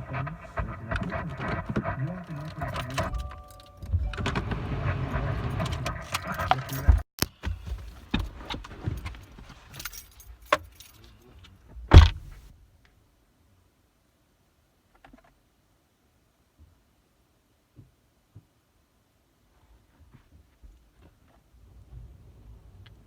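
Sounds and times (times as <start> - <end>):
car cabin rumble: 0.1 - 7.0, 11.9 - 12.5
handling clicks and rattles: 0.9 - 4.4, 5.5 - 7.0, 11.9 - 12.5.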